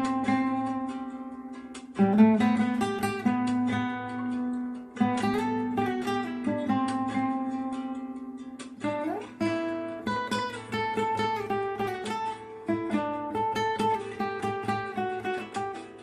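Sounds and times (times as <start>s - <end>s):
plucked acoustic guitar melody: 0.0s - 16.0s
strummed guitar chords: 0.0s - 16.0s.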